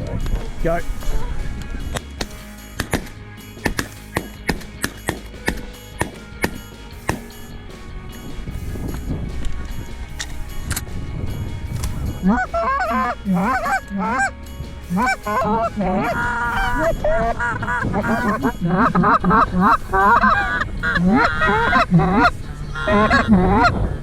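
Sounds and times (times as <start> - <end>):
geese honking: 11.8 - 24.0.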